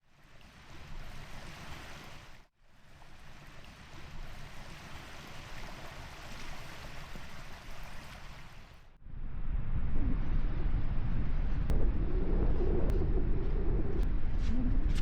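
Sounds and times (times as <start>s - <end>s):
ocean waves on a beach: 0.0s - 8.9s.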